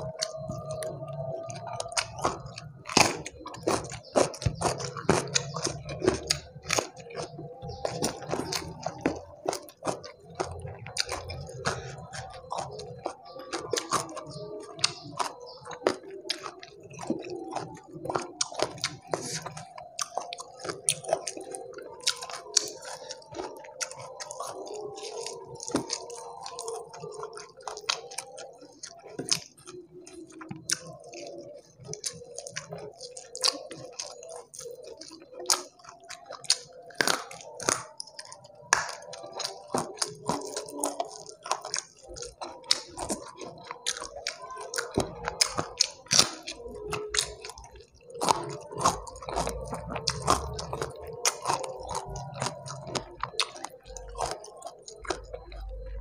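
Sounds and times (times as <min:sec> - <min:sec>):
chewing fried chicken: 0:00.0 - 0:56.0
wet mouth clicks: 0:00.0 - 0:56.0.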